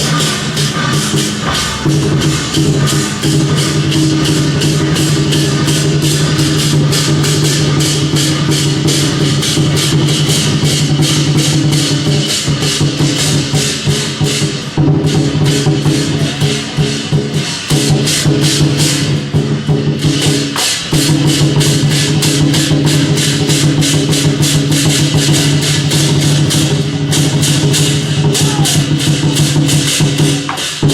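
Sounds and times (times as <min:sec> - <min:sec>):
percussion in steady rhythm: 0:00.0 - 0:30.9.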